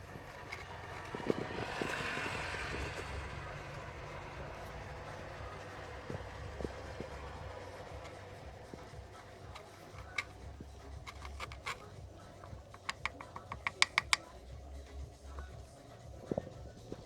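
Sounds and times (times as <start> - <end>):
metal parts clicking: 0.0 - 2.2, 4.6 - 14.3.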